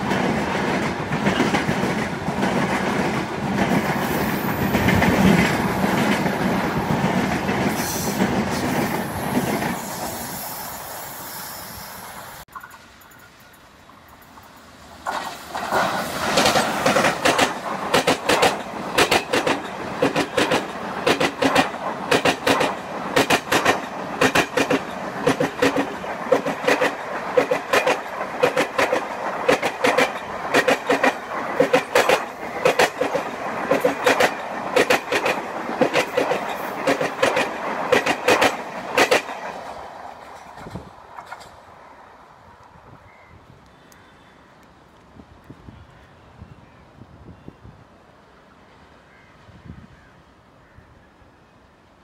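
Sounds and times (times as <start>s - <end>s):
train wheels clattering: 0.0s - 10.1s, 12.5s - 41.6s
train rumble: 0.0s - 43.0s.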